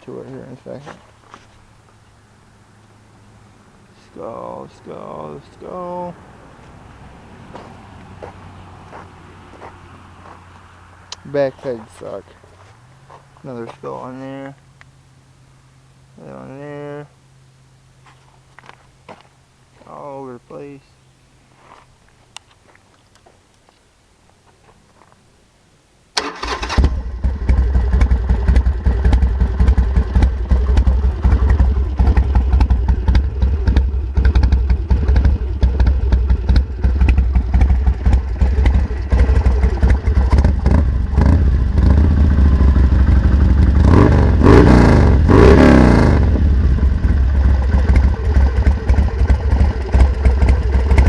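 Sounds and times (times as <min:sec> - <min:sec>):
motorcycle engine revving: 0:26.2 - 0:51.0
motorcycle starting and idling: 0:26.2 - 0:51.0.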